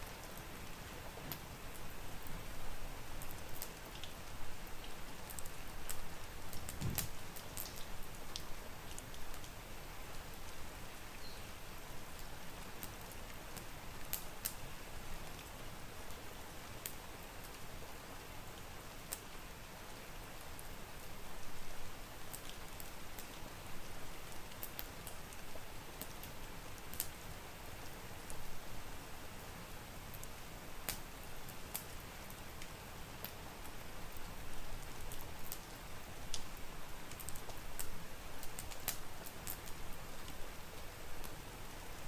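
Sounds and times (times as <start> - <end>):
steady rain hiss: 0.0 - 42.0
wood fire crackling and popping: 3.2 - 9.6, 12.1 - 14.6, 16.8 - 17.6, 22.3 - 27.2, 30.1 - 41.4.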